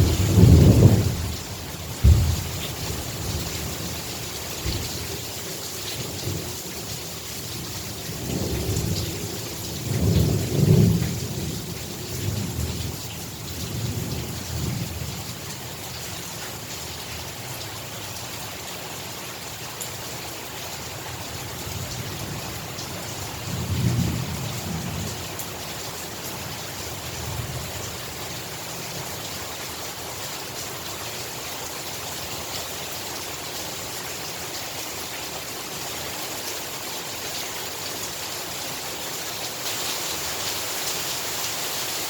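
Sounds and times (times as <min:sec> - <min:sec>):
thunder rumbling: 0:00.0 - 0:03.4
heavy rain falling: 0:00.0 - 0:42.0.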